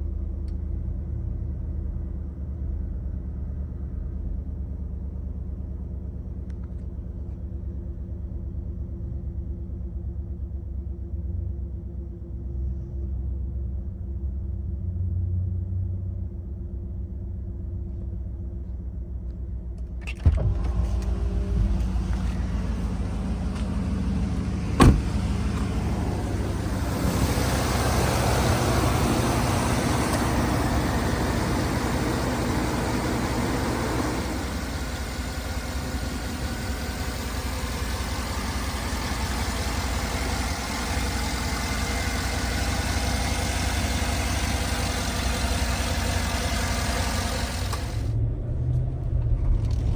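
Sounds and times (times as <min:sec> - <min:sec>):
car engine running: 0:15.8 - 0:49.9.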